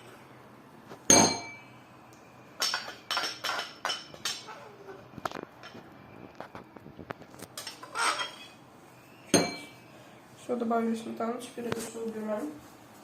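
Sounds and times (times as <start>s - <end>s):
spoon scraping dish: 7.6s - 8.6s
spoon clinking against dish: 9.3s - 9.8s.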